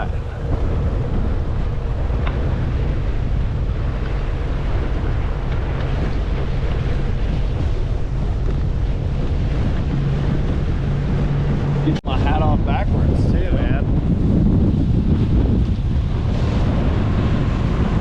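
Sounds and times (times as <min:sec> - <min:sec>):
water rushing: 0:00.0 - 0:14.1
boat engine running: 0:00.0 - 0:18.0
wind buffeting microphone: 0:00.0 - 0:18.0.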